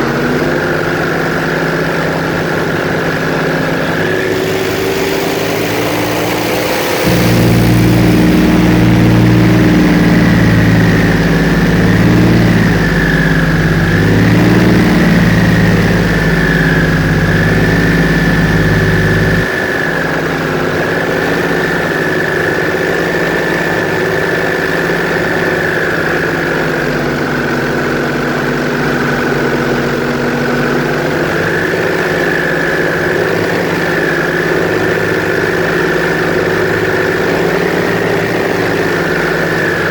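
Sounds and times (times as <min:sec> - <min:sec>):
airboat engine and propeller: 0:00.0 - 0:39.9
high whine: 0:03.0 - 0:39.9.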